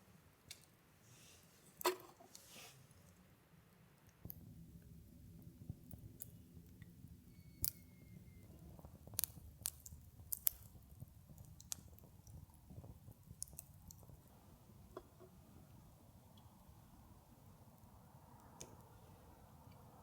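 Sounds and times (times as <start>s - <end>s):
faint thin squeak: 7.3s - 8.6s
sharp clicks and crackles: 8.8s - 14.2s.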